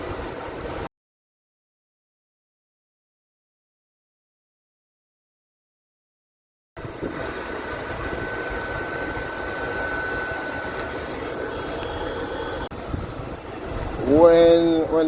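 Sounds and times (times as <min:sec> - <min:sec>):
welder cooling fan whirring: 0:06.8 - 0:15.0
wire feed whine: 0:06.8 - 0:15.0.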